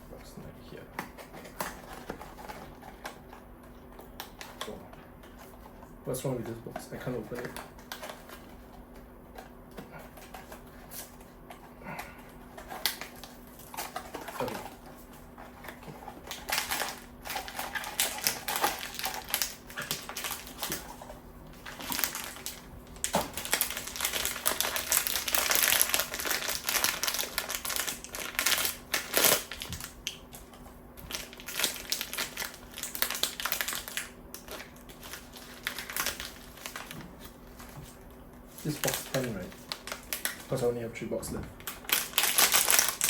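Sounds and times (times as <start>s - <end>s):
cardboard box packaging rustling: 12.4s - 29.9s
sharp packaging crackle: 15.6s - 30.3s, 31.0s - 37.7s, 38.5s - 40.7s, 41.6s - 43.0s.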